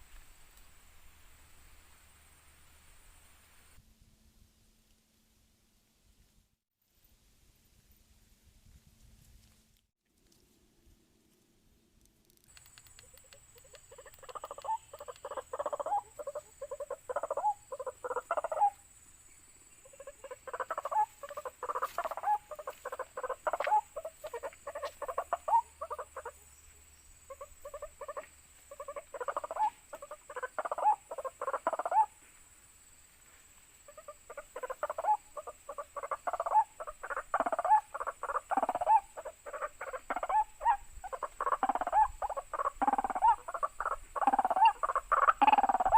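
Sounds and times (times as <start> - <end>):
waterhen croaking calls: 12.8 - 18.8, 19.8 - 26.4, 27.3 - 32.1, 33.9 - 45.9.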